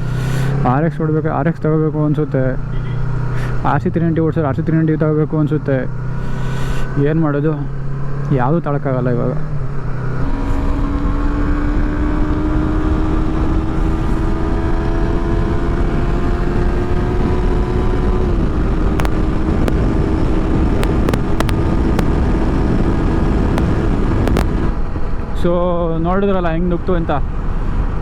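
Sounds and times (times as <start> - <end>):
motorcycle engine at high revs: 0.0 - 1.1, 1.7 - 25.4
wind rush on microphone: 9.9 - 25.4
sharp clicks: 18.9 - 19.8, 20.8 - 22.1, 23.6 - 24.6.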